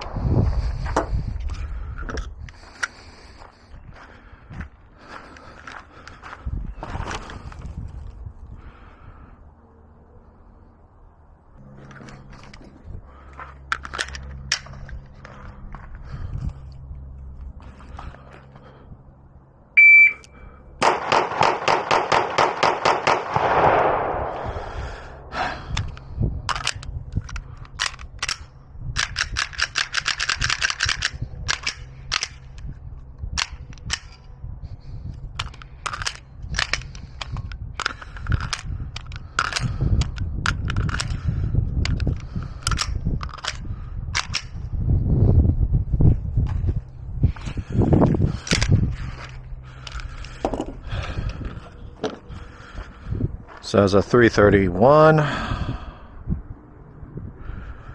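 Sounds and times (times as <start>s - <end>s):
shot timer beep: 19.8s - 20.4s
pistol gunfire: 20.8s - 24.8s.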